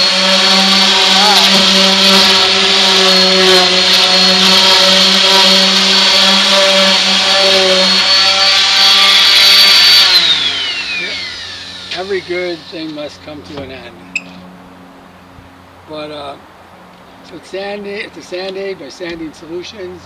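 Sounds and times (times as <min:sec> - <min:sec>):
orbital sander motor whine: 0:00.0 - 0:14.9.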